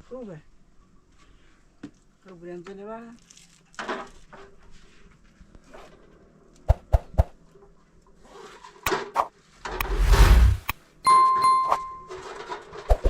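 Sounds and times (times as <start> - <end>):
loud rustling rumbling burst: 9.7 - 10.7.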